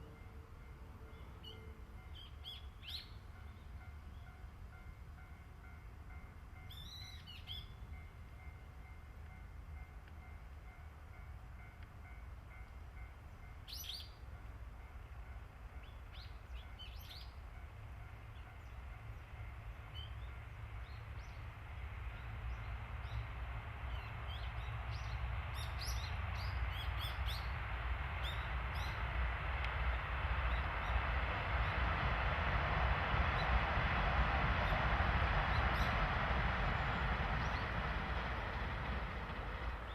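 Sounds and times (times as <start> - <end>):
diesel locomotive rumble: 18.0 - 39.9.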